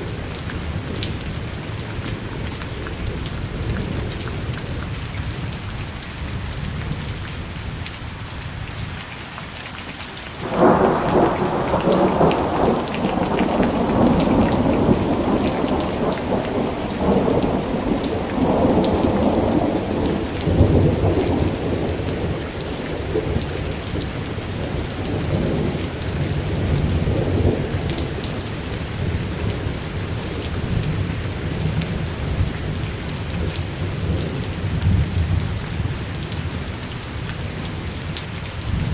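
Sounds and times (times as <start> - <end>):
steady rain falling: 0.0 - 38.9
thunder crackling and rumbling: 10.4 - 38.9.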